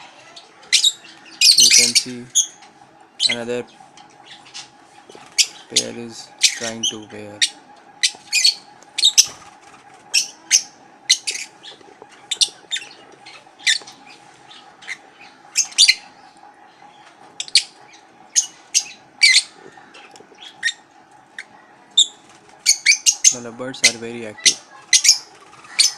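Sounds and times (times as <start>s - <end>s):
faint hum: 0.0s - 25.9s
lovebirds chirping and squawking: 0.0s - 25.9s.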